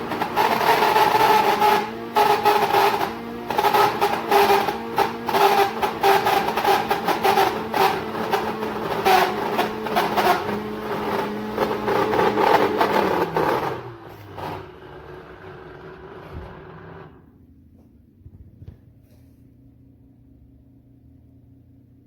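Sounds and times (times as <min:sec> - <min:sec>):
shop vacuum motor humming: 0:00.0 - 0:17.3.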